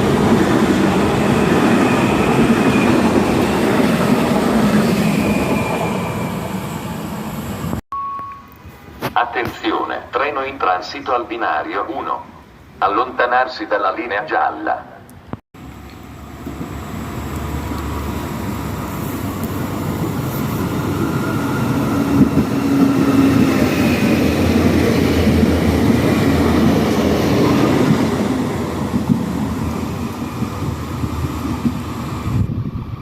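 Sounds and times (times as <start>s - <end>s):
train passing: 0.0s - 7.8s, 15.6s - 33.0s.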